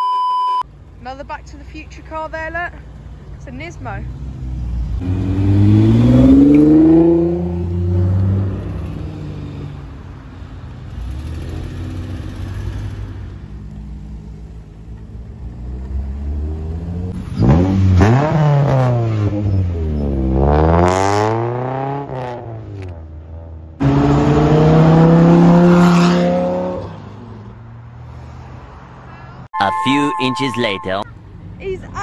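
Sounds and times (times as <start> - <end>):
car engine accelerating: 4.1 - 9.8, 10.9 - 27.6
car engine revving hard: 5.0 - 9.2, 16.0 - 22.5, 23.8 - 27.0.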